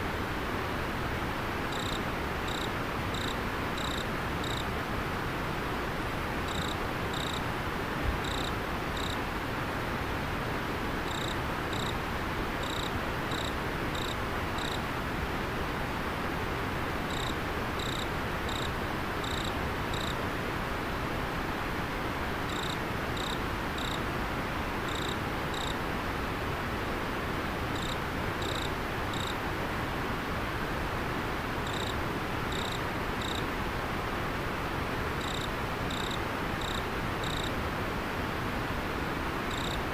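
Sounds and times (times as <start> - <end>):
insect chirping: 1.7 - 4.7, 6.5 - 7.4, 8.2 - 9.2, 11.1 - 12.0, 12.6 - 14.8, 17.1 - 20.2, 22.5 - 24.0, 24.9 - 25.8, 27.8 - 29.4, 31.6 - 33.4, 35.2 - 37.5, 39.5 - 39.8.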